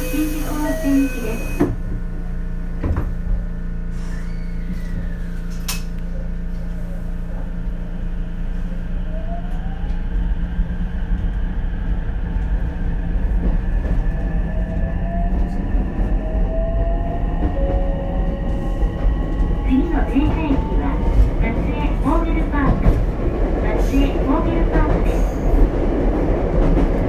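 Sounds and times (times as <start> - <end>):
traction motors whining: 0.0 - 1.8
railcar steady low hum: 0.0 - 27.0.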